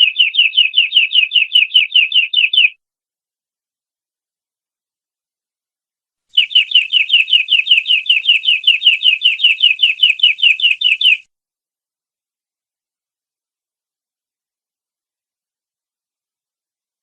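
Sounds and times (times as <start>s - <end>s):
canary trilling: 0.0s - 2.8s, 6.4s - 11.2s.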